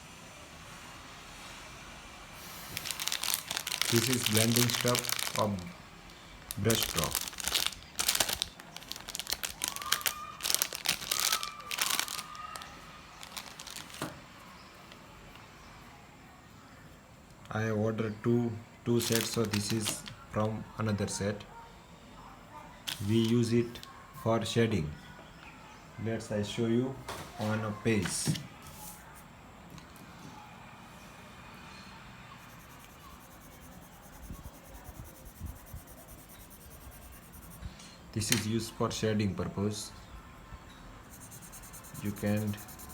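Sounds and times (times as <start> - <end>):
plastic packaging crinkling: 2.7 - 5.7, 6.5 - 14.1, 19.0 - 20.1
pencil scratching on paper: 32.4 - 37.6, 41.0 - 42.9.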